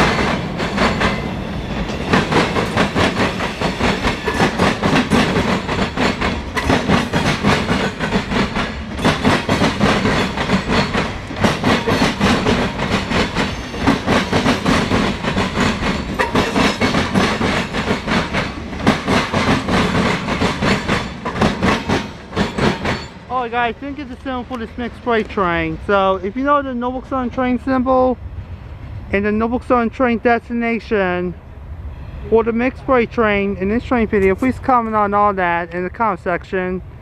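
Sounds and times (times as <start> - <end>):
train wheels clattering over rail joints: 0.0 - 25.4.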